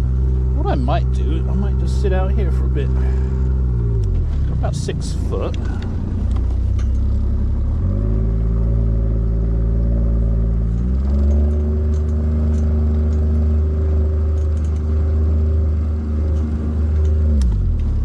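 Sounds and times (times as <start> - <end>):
boat motor running: 0.0 - 7.6.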